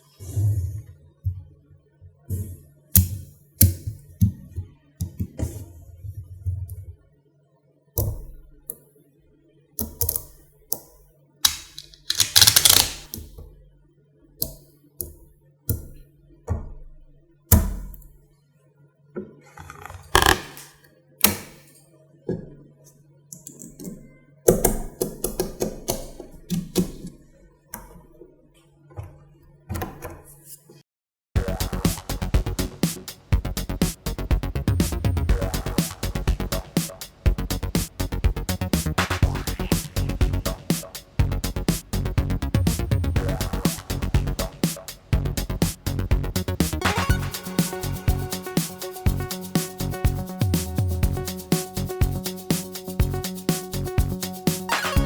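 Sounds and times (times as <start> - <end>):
magnetic balls clicking together: 11.5 - 13.3.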